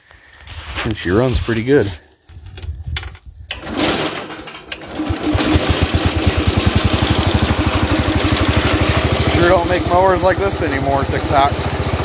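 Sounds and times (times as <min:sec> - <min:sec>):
tractor engine running: 0:03.5 - 0:12.0.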